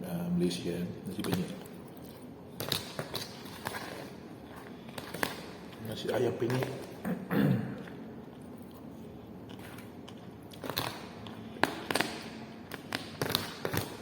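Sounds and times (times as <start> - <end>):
person biting and chewing: 1.6 - 5.8, 7.8 - 14.0.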